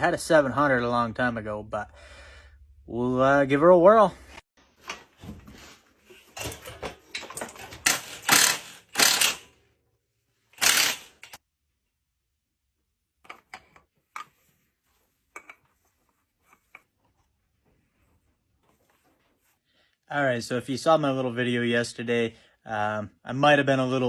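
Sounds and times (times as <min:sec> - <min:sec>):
loud clanks and rattles: 0:06.2 - 0:09.5, 0:10.6 - 0:11.4.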